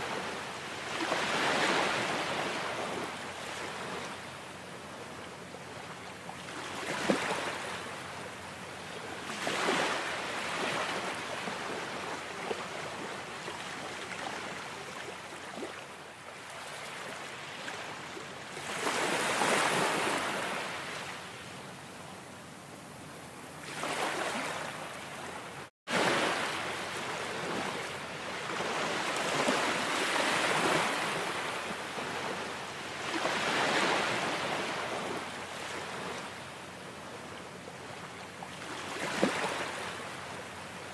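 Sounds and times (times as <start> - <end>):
ocean waves breaking: 0.0 - 4.2, 9.0 - 15.8, 16.4 - 21.2, 23.6 - 37.1, 37.8 - 40.4.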